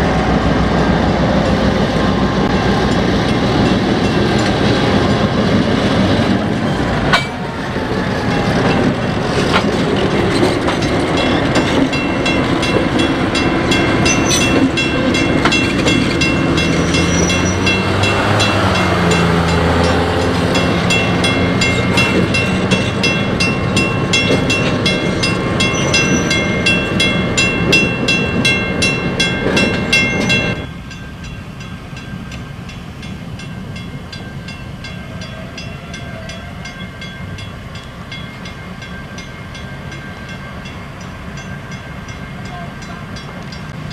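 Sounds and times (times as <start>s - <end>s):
train rumble: 0.0s - 43.9s
train wheels clicking over rails: 2.4s - 31.0s.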